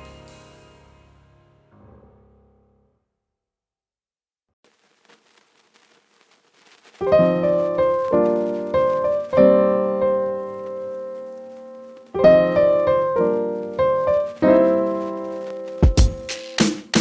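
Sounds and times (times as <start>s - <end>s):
slow piano chords: 7.0s - 16.6s.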